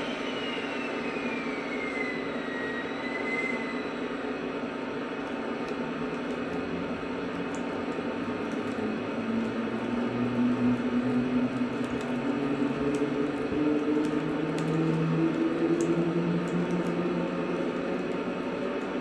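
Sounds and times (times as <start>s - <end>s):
model train motor whining: 0.0s - 4.3s
train rolling on track: 0.0s - 19.0s
light ticks: 11.5s - 18.2s.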